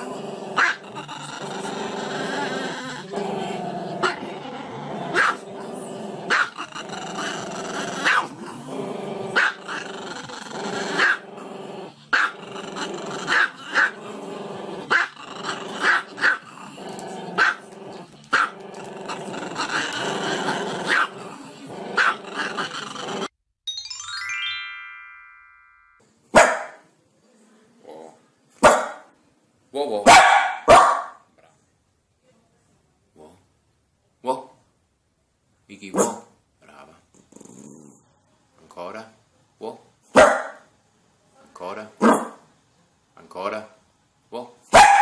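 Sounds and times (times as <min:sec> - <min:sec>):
dog barking: 0:05.1 - 0:05.4, 0:06.3 - 0:06.5, 0:08.0 - 0:08.3, 0:20.9 - 0:21.1, 0:22.0 - 0:22.2, 0:26.3 - 0:26.8, 0:28.6 - 0:29.1, 0:30.0 - 0:31.2, 0:35.9 - 0:36.3, 0:40.1 - 0:40.6, 0:42.0 - 0:42.4, 0:44.7 - 0:45.0.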